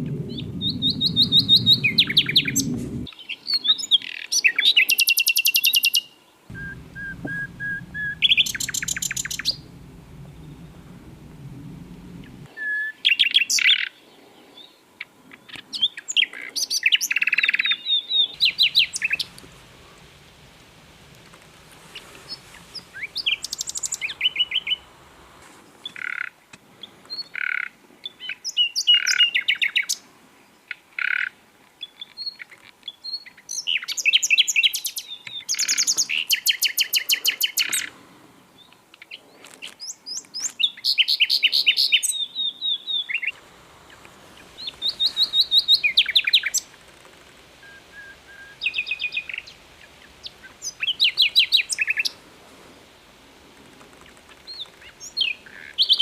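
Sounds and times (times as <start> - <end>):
clear whistled bird notes: 0.0 - 13.8, 17.1 - 20.1, 21.9 - 24.9, 44.4 - 46.7, 47.6 - 52.2
nightingale singing: 0.0 - 14.0, 15.4 - 25.0, 39.8 - 46.8, 47.6 - 52.2, 54.3 - 56.0.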